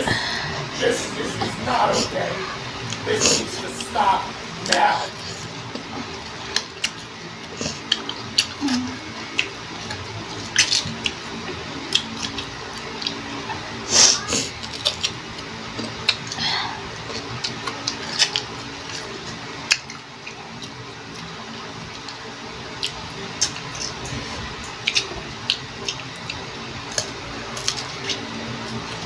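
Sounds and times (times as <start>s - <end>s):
faint steady hum: 0.0s - 29.0s
mango being bitten and chewed: 5.6s - 16.4s, 17.0s - 29.0s.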